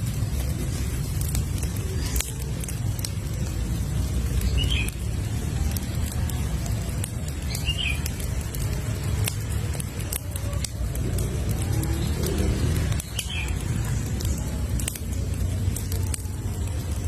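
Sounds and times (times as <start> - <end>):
campfire crackling and popping: 0.0 - 17.0
bird chirp: 7.4 - 8.1.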